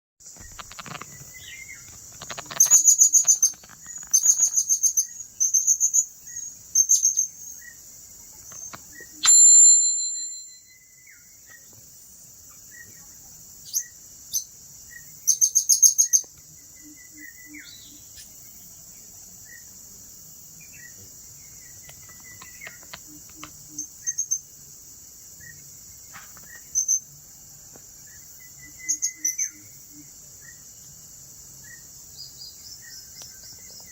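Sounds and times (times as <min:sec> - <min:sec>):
high insect drone: 0:00.2 - 0:33.9
parrot chirping trills: 0:00.5 - 0:07.4, 0:08.4 - 0:11.0
shrill bird note: 0:09.2 - 0:11.2.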